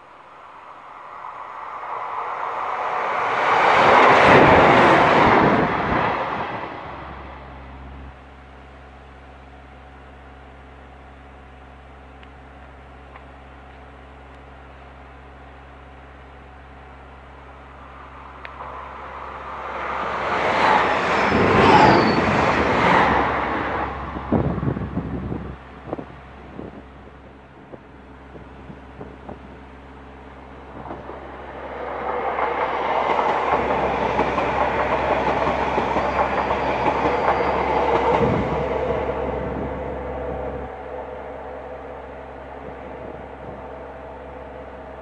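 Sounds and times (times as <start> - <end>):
train wheels rushing on rail: 0.0 - 10.8, 11.7 - 45.0
wind buffeting microphone: 2.0 - 7.6, 20.2 - 41.3, 41.9 - 44.1.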